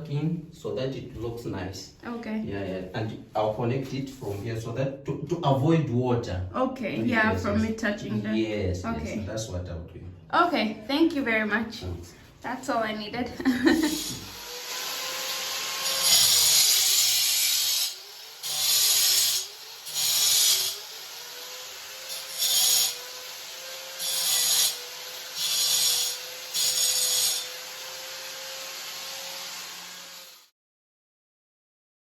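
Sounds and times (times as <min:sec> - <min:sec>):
hand saw rasping: 0:13.8 - 0:30.4.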